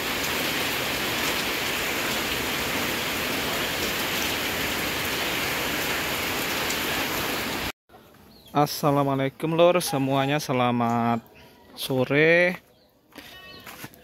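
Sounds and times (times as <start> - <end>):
heavy rain pouring: 0.0 - 7.7.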